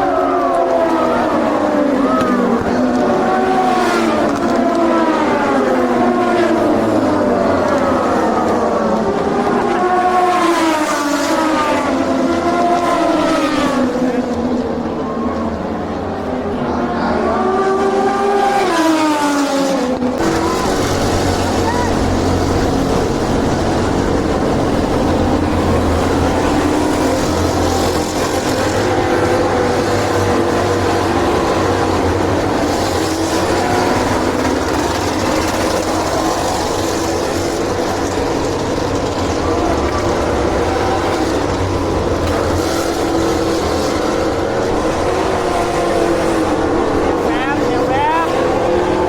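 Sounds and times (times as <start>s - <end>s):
vehicle engine running: 20.0s - 49.0s.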